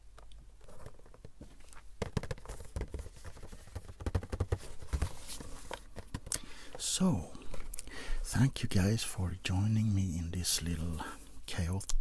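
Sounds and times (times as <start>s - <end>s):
taps and clicks on packaging: 2.0s - 5.1s.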